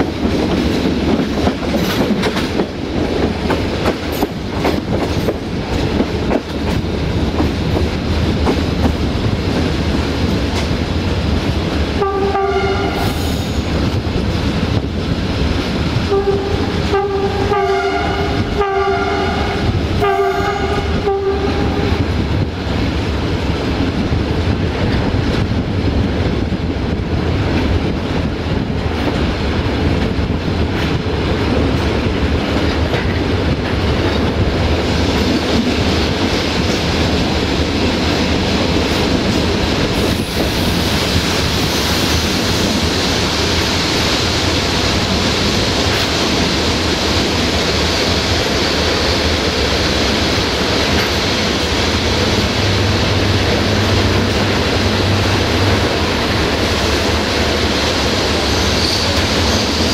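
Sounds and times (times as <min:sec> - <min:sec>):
train wheels clattering on rails: 0:00.0 - 0:59.9
brake hiss and wheel squeal: 0:58.5 - 0:59.9.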